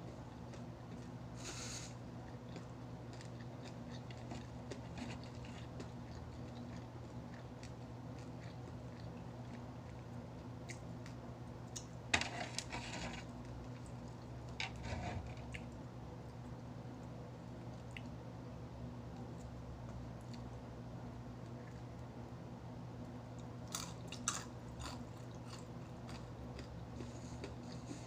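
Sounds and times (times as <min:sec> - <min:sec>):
crunching while eating: 0:00.0 - 0:15.8, 0:23.3 - 0:28.0
steady low hum: 0:00.0 - 0:28.0.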